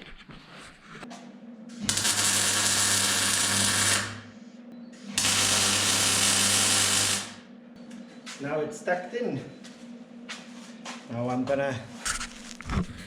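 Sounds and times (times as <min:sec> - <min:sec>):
hissing buzzing welder: 0:01.8 - 0:04.3, 0:05.2 - 0:07.4.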